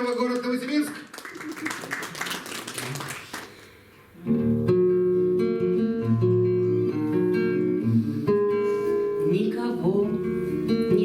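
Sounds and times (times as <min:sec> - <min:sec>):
applause: 0:00.0 - 0:03.9
guitar accompaniment: 0:03.5 - 0:11.0.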